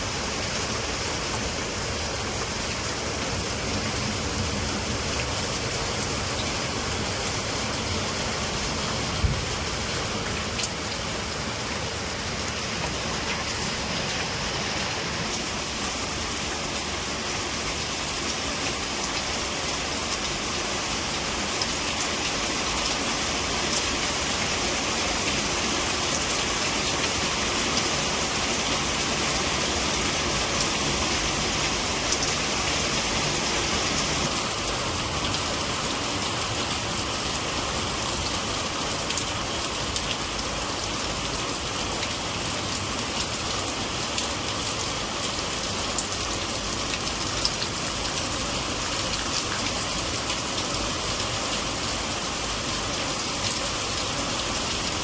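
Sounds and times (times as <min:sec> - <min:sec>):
steady rain falling: 0:00.0 - 0:55.0
rain drop ticks: 0:10.2 - 0:10.9.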